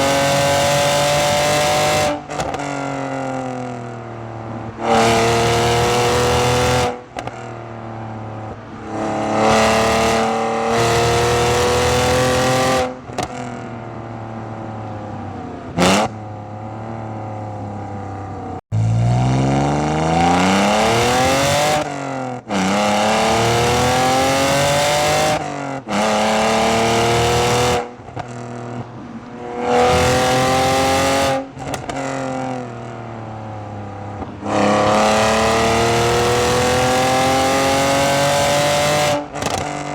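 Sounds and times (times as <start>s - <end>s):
car exhaust revving: 18.7s - 32.8s.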